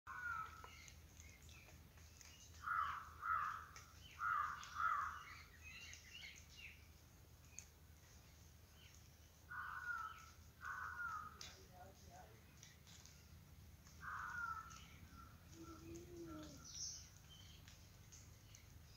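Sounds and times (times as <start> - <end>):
bird calling: 0.1 - 6.6, 8.9 - 11.6, 13.9 - 18.7
small birds chirping: 0.1 - 18.9.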